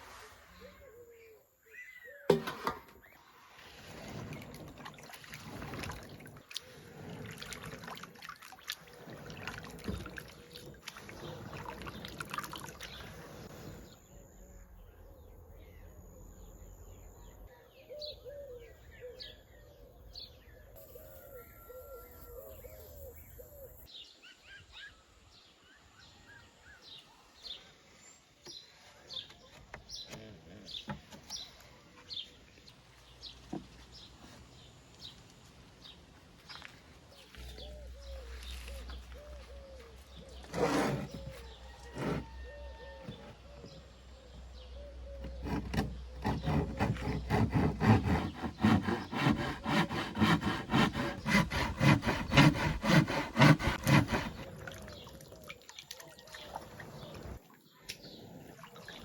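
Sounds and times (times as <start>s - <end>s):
small birds chirping: 22.5s - 40.5s, 54.3s - 59.0s.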